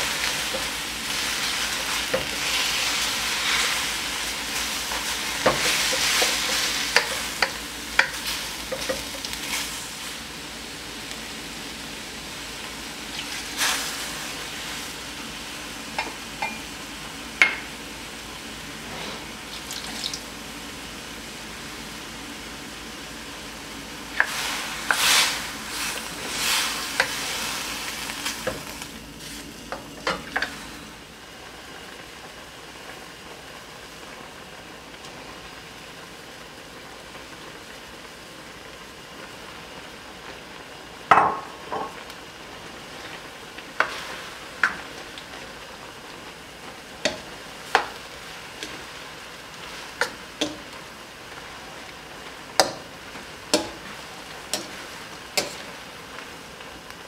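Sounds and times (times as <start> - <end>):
wooden spoon scraping a wok: 0.0 - 10.2, 18.8 - 19.4, 24.2 - 30.8, 47.0 - 50.8, 52.6 - 55.8
food sizzling in a wok: 0.0 - 57.0
spoon knocking against pan: 52.6 - 52.8.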